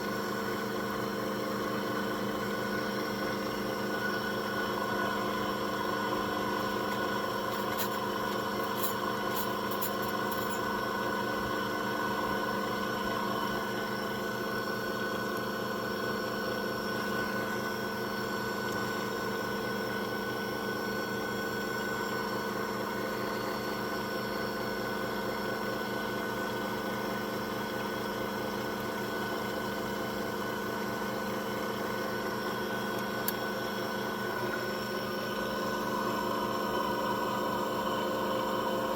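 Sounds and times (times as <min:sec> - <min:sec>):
key-cutting machine motor humming: 0:03.9 - 0:11.0.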